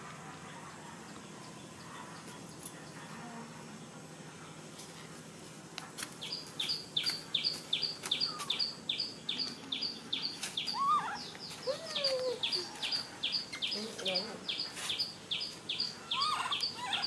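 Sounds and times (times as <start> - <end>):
bird chirping: 6.2 - 17.0.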